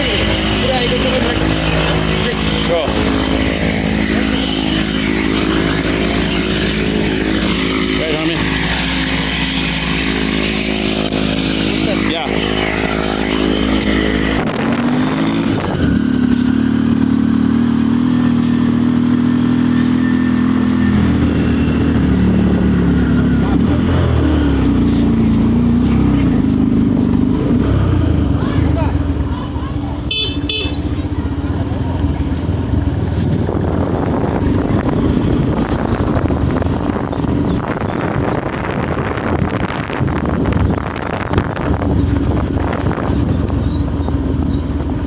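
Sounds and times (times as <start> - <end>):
wind buffeting microphone: 0.0 - 16.3, 31.6 - 45.0
motorcycle engine running: 0.0 - 45.0.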